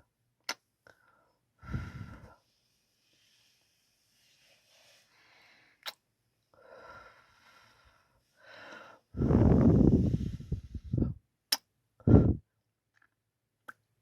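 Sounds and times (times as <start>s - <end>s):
soft breaths on microphone: 1.2s - 5.8s, 6.5s - 11.2s, 12.0s - 12.4s.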